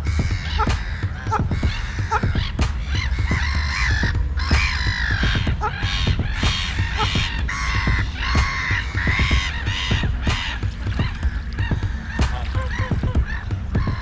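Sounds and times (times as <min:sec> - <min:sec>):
birds calling loudly: 0:00.0 - 0:14.0
steady low rumble: 0:00.0 - 0:14.0.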